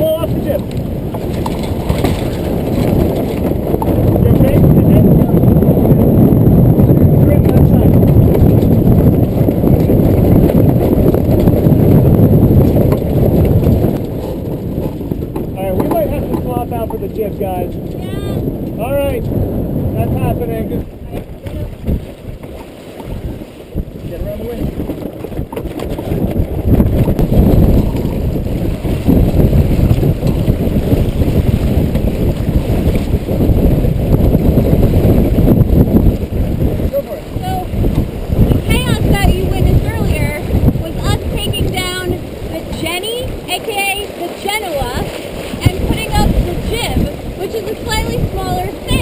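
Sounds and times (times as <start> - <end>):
wind buffeting the microphone: 0.0 - 49.0.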